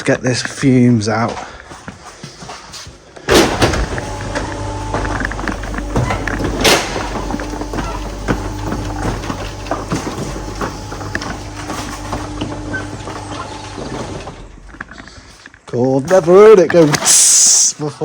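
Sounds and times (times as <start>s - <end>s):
car engine idling: 3.3s - 15.4s
garage doors rattling open: 3.3s - 17.4s.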